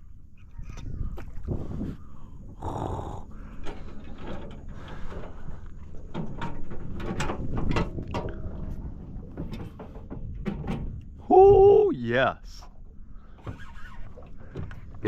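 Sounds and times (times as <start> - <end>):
knocks and clatter on boat: 3.6 - 11.8, 13.3 - 15.0.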